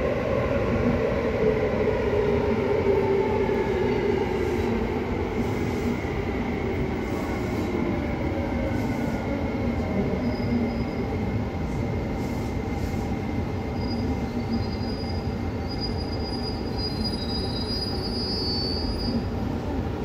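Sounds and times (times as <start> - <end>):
thin high brake squeal: 13.8 - 19.2.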